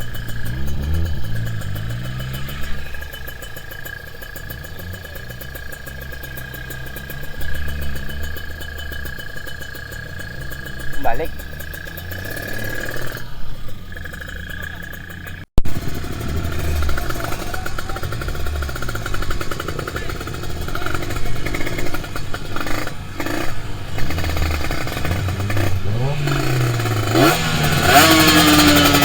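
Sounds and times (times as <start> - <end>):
two-stroke motorcycle engine running: 0.0 - 29.0.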